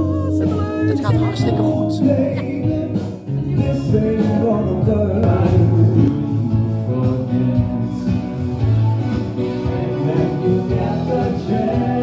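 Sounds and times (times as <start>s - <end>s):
stage show music with singing: 0.0s - 12.0s.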